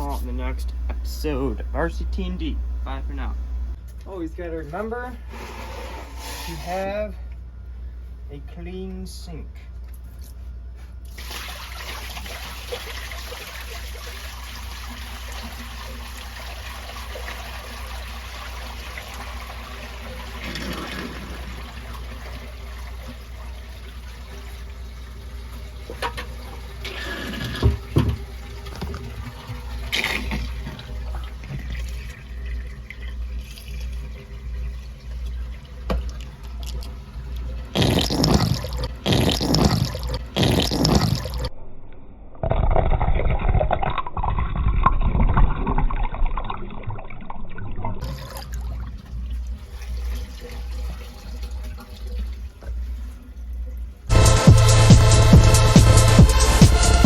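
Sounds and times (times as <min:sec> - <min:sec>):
tap water running into sink: 0:11.2 - 0:41.5.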